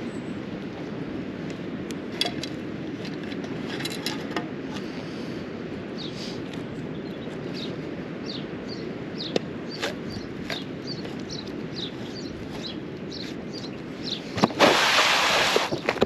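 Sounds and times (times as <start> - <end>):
songbirds chirping: 0.0 - 14.7, 15.4 - 16.0
loud burst of noise: 14.4 - 15.8.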